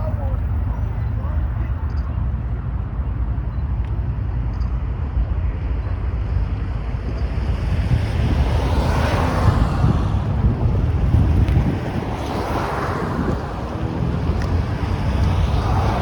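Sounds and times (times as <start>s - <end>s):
wind buffeting microphone: 0.0s - 16.0s
rushing noise: 8.1s - 16.0s.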